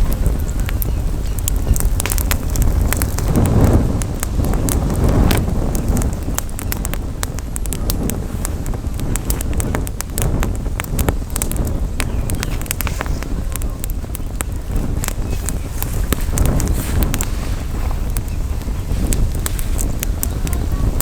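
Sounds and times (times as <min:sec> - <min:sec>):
campfire crackling and popping: 0:00.0 - 0:21.0
wind rumble on microphone: 0:00.0 - 0:21.0.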